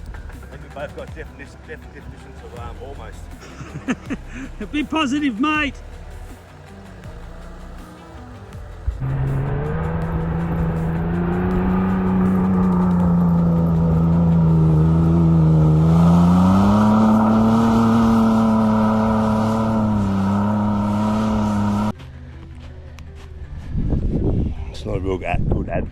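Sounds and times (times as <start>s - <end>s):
engine revving hard: 9.0s - 21.9s.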